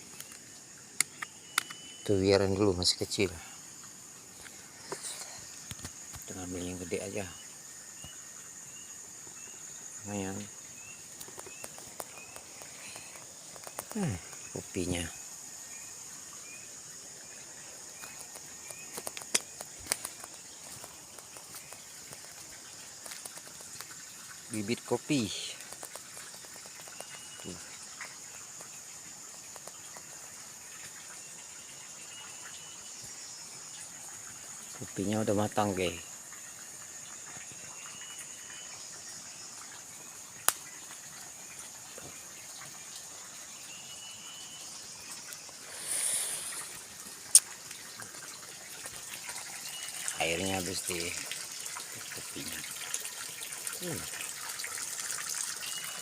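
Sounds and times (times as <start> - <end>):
insect chorus: 0.0 - 56.0
sharp clicks and snaps: 18.0 - 21.4
brief hiss: 45.6 - 47.5.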